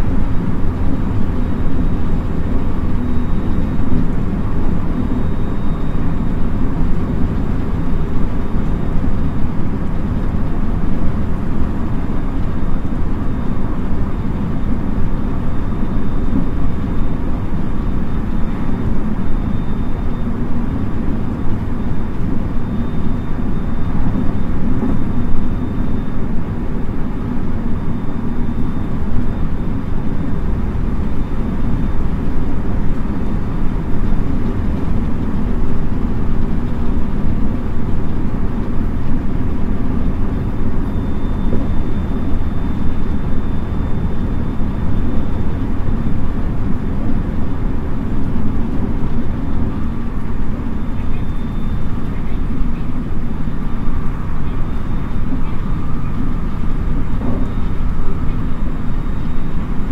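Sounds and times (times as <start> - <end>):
wheels rumbling on rail: 0.0 - 59.9
faint steady high tone: 1.2 - 7.2, 13.3 - 33.4, 40.2 - 46.4, 49.5 - 59.9.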